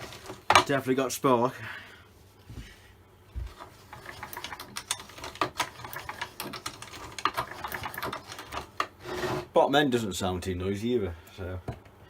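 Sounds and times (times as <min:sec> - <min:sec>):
chainsaw starter clicks and rattles: 0:03.8 - 0:09.0.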